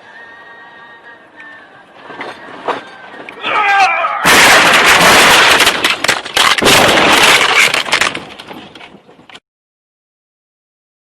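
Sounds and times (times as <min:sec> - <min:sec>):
vehicle crash banging: 0:02.0 - 0:09.2.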